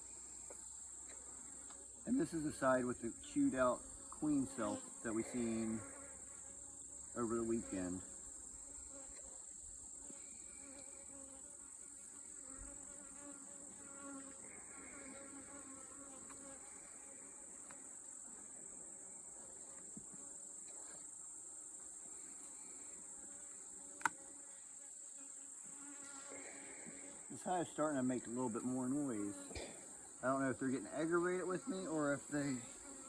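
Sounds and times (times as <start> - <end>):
honeybees buzzing: 0.0 - 33.0.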